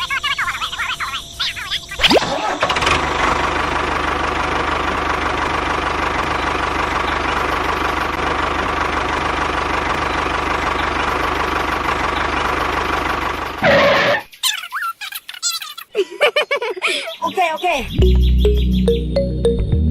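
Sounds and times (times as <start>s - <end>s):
tractor engine running: 2.2s - 14.4s.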